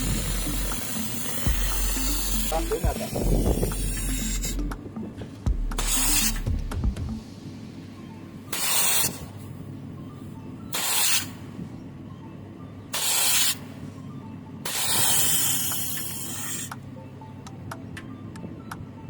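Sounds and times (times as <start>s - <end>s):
solvent spray hissing: 0.0s - 4.8s, 5.7s - 6.6s, 8.5s - 9.3s, 10.7s - 11.3s, 13.0s - 13.6s, 14.7s - 16.8s.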